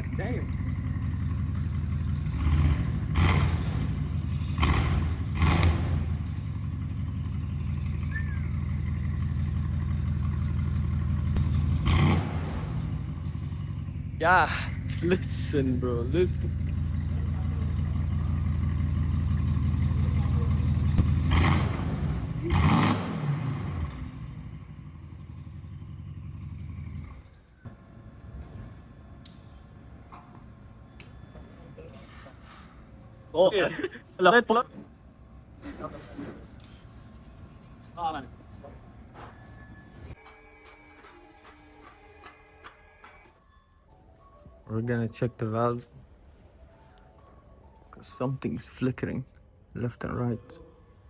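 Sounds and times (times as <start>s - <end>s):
car engine idling and revving: 0.0s - 43.4s.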